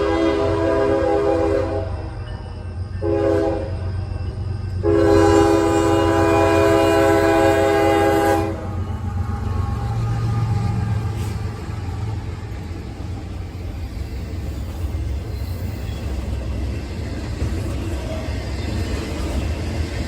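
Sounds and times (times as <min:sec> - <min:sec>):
locomotive air horn blasts: 0:00.0 - 0:02.0, 0:03.0 - 0:03.8, 0:04.8 - 0:08.8
train rumbling: 0:00.0 - 0:20.0.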